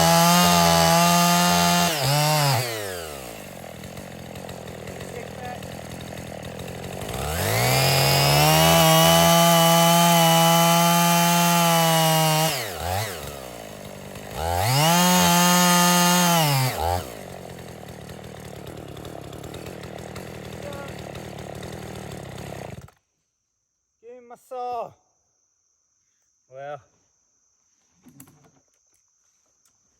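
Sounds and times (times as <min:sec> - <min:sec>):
chainsaw revving and idling: 0:00.0 - 0:23.0.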